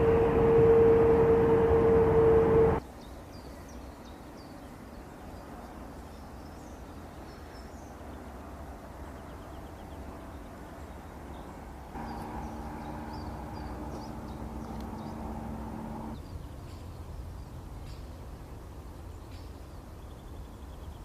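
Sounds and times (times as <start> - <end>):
droning hum with held tones: 0.0 - 2.8, 12.0 - 16.2
steady low rumble: 0.0 - 2.8, 12.0 - 16.2
small birds chirping: 12.0 - 16.4.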